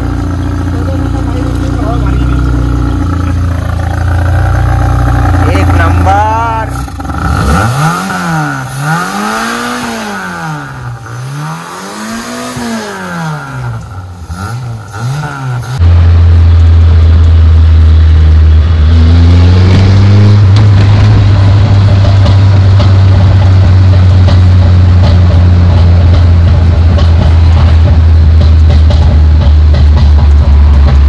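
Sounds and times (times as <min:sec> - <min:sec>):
car engine revving: 0:00.0 - 0:31.0
loud steady low drone: 0:00.0 - 0:31.0.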